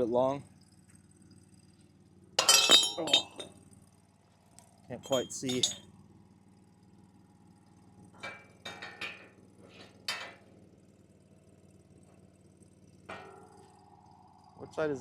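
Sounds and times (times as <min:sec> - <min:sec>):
metal knocks and clanks: 0:02.4 - 0:03.5, 0:05.0 - 0:05.8.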